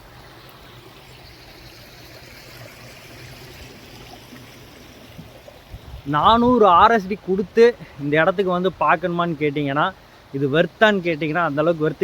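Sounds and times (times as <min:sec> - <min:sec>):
water trickling in stream: 0:00.0 - 0:12.0.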